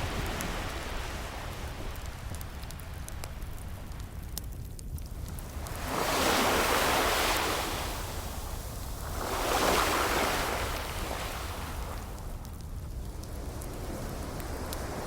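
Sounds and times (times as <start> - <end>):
low rumble of surf: 0.0 - 15.0
ocean waves breaking: 5.2 - 12.3, 13.4 - 15.0.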